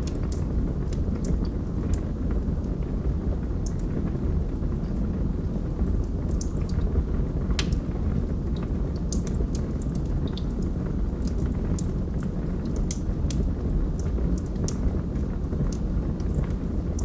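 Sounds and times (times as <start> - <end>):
wood crackling and popping: 0.0 - 2.2, 5.7 - 17.0
fire rumbling: 0.0 - 17.0.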